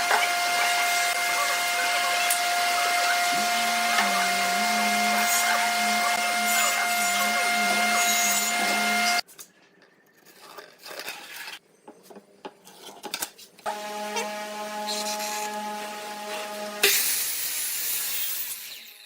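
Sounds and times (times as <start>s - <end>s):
electric power tool whining: 0.0s - 9.2s, 13.7s - 17.3s.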